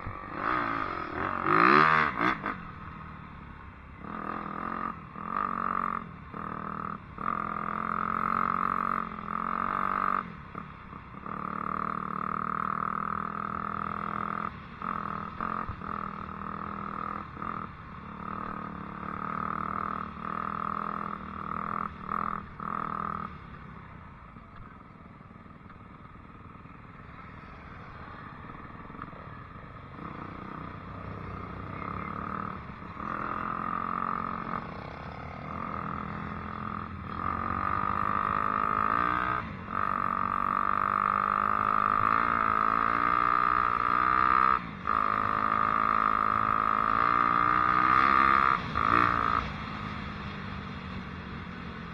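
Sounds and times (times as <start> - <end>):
dirt bike engine revving: 0.1 - 2.8, 31.4 - 49.6.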